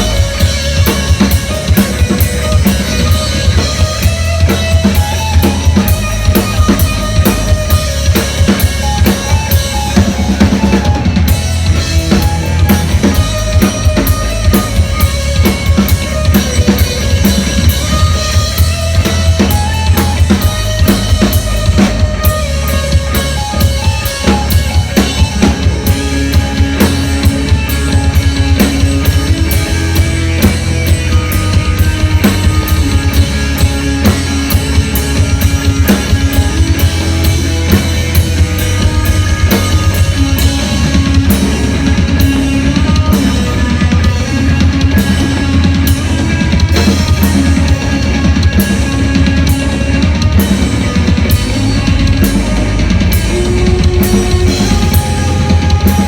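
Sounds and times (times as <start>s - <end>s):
fast driving drums: 0.0s - 56.0s
rock band playing live: 0.0s - 56.0s.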